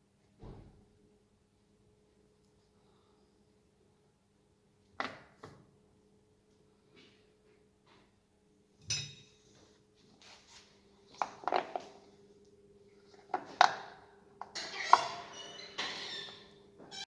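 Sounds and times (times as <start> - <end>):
faint steady hum: 5.6 - 14.4
metal tools clinking: 14.7 - 16.5.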